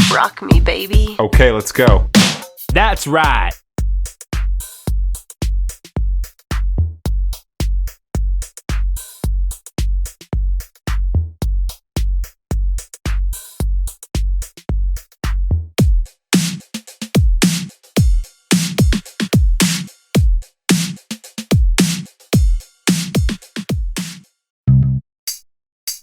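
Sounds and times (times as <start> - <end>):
electronic dance music: 0.0 - 1.2, 1.8 - 3.6
drum machine kick beat: 0.0 - 24.3.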